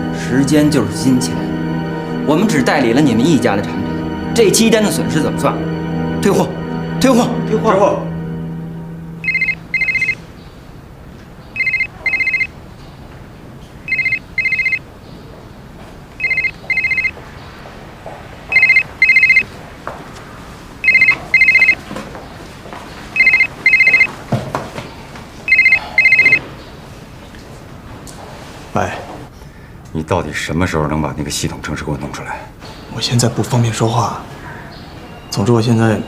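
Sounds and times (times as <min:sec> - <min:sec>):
telephone ringing: 0:09.2 - 0:10.2, 0:11.6 - 0:12.6, 0:13.8 - 0:14.9, 0:16.2 - 0:17.2, 0:18.5 - 0:19.5, 0:20.8 - 0:21.9, 0:23.2 - 0:24.2, 0:25.5 - 0:26.5.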